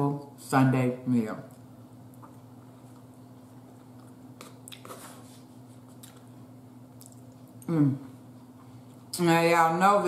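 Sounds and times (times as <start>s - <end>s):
steady low hum: 0.0s - 10.0s
person chewing soft food: 1.5s - 9.1s
wet mouth clicks: 4.0s - 5.0s, 7.0s - 7.7s
person humming mm: 7.6s - 8.2s.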